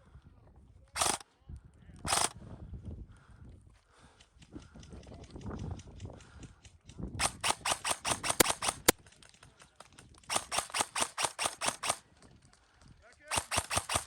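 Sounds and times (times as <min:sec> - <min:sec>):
airsoft gun automatic bursts: 0:01.0 - 0:01.2, 0:02.1 - 0:02.4, 0:07.2 - 0:09.0, 0:10.2 - 0:12.1, 0:13.2 - 0:14.0.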